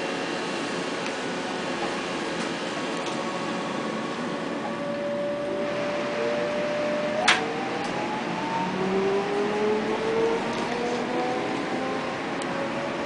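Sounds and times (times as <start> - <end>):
train running noise: 0.0 - 13.0
whining tones sliding in pitch: 4.6 - 12.0.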